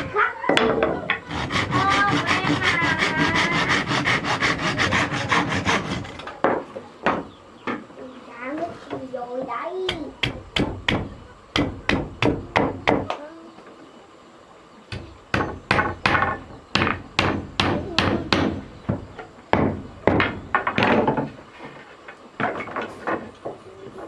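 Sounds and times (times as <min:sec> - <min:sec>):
hammer striking wood: 0:09.9 - 0:13.1, 0:14.9 - 0:21.4.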